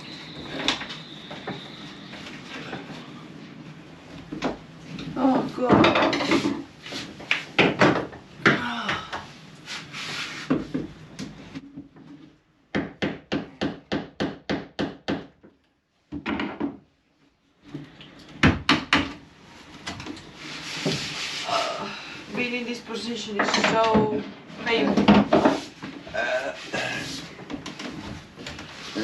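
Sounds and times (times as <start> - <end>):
handling and rubbing: 19.4 - 21.6.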